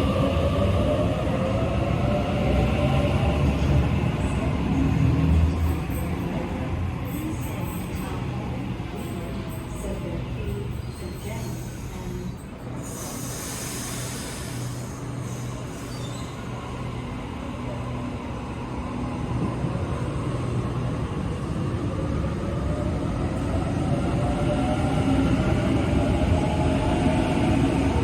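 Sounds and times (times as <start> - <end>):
rail noise: 0.0 - 28.0.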